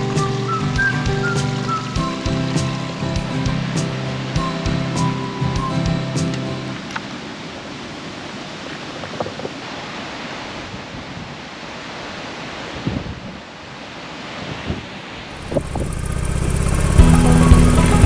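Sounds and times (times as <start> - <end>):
music: 0.0 - 7.0, 15.8 - 18.0
steady rushing noise: 12.0 - 18.0.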